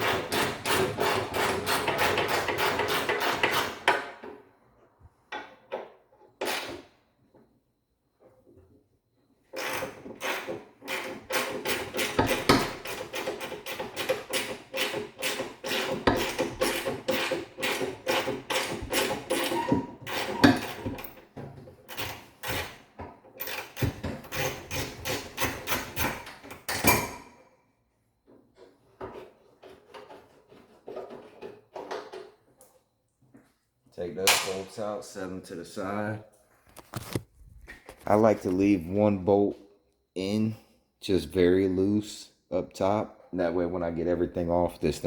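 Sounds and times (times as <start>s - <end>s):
hand ratchet clicking rapidly: 9.6s - 19.5s.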